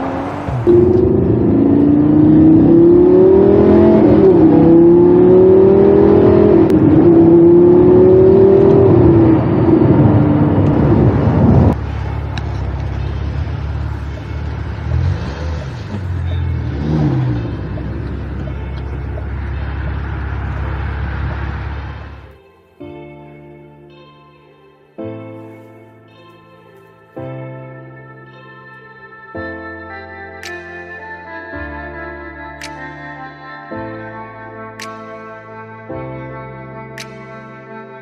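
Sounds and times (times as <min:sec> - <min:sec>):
car engine accelerating: 0:00.0 - 0:22.3.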